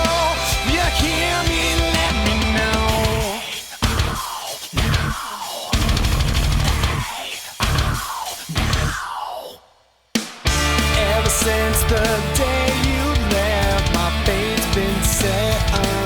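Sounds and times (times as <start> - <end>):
instrumental rock music: 0.0 - 4.2, 5.8 - 7.0, 10.2 - 16.0.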